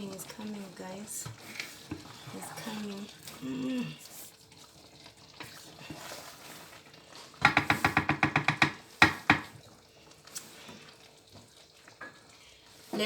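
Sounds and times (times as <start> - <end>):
sharp knocks: 7.4 - 9.5.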